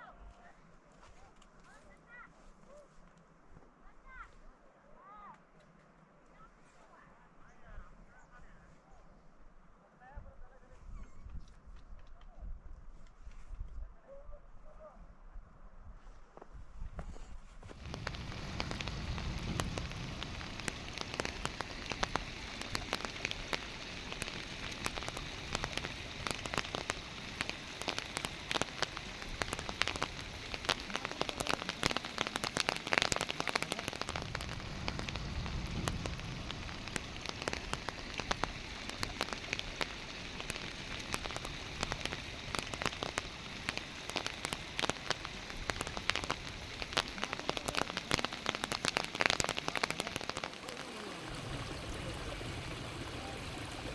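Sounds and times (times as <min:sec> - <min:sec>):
steady rain hiss: 0:17.6 - 0:53.9
raindrops ticking close by: 0:17.7 - 0:53.9.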